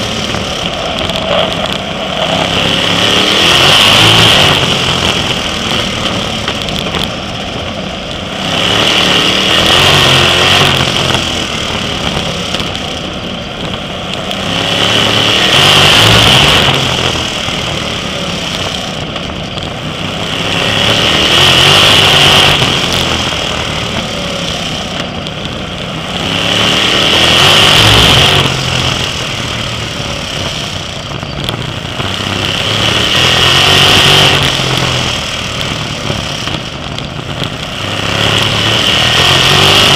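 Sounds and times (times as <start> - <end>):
race car engines: 0.0 - 39.9.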